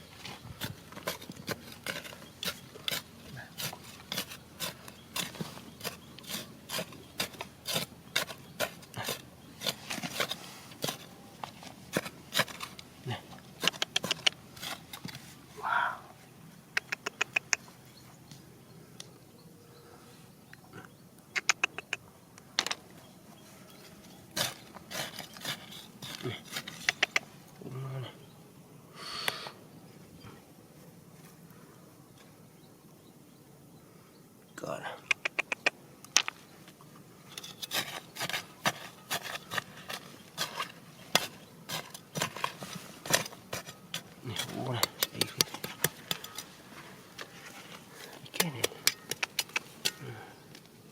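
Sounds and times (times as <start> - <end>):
digging tool scraping rock: 0.1 - 15.4, 23.7 - 27.4, 37.2 - 50.7
stones clicking together: 13.6 - 14.4, 35.1 - 36.4, 37.4 - 46.5, 48.2 - 50.7.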